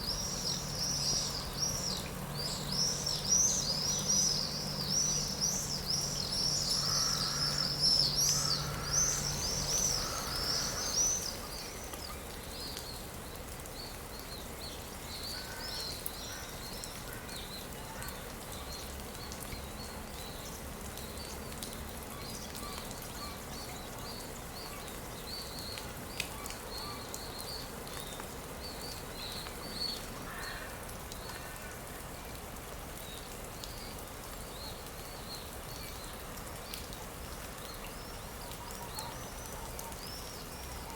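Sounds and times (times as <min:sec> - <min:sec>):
birds singing: 0:00.0 - 0:13.1
steady background hiss: 0:00.0 - 0:40.9.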